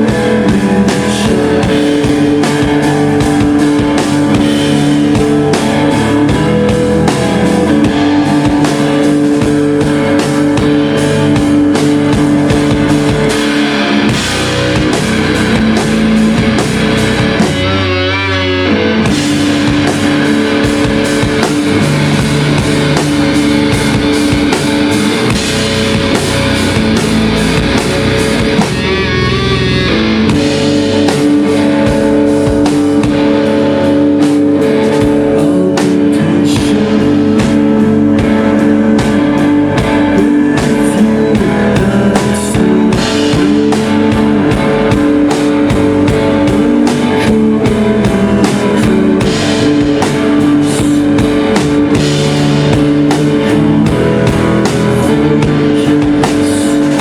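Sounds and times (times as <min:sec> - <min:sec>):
live rock band playing: 0:00.0 - 0:57.0
wavering guitar notes: 0:00.0 - 0:57.0.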